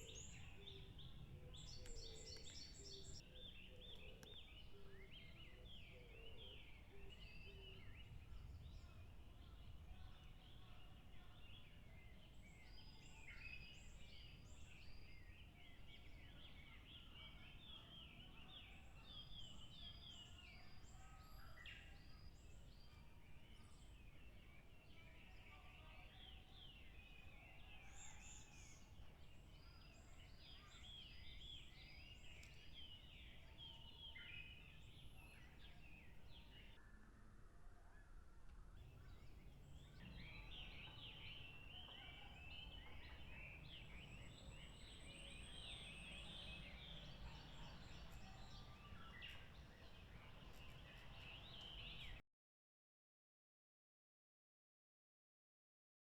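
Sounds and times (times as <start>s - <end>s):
small birds chattering: 0.0s - 21.1s, 38.8s - 52.2s.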